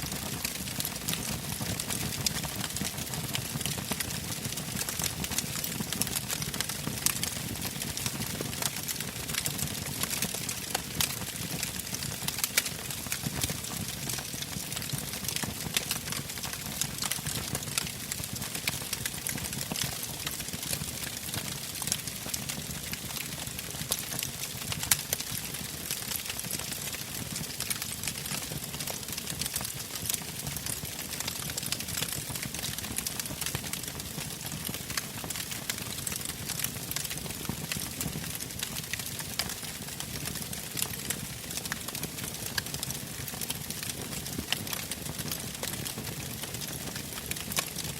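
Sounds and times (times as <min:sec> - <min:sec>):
fire crackling and popping: 0:00.0 - 0:47.9.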